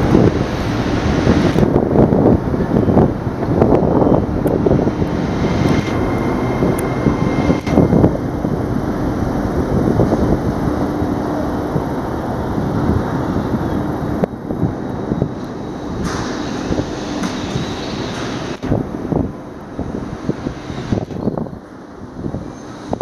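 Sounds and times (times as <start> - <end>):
low hum: 0.0 - 22.3
train wheels rumbling on rail: 0.0 - 23.0
faint high whine: 3.8 - 21.6.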